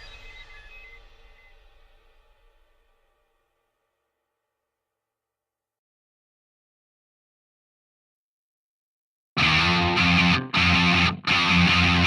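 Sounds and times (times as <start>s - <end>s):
distorted punk bass riff: 9.4s - 12.0s.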